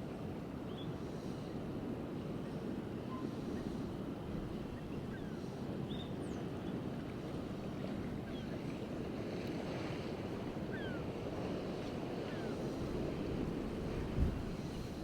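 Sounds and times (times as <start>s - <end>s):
wind buffeting microphone: 12.6s - 15.0s.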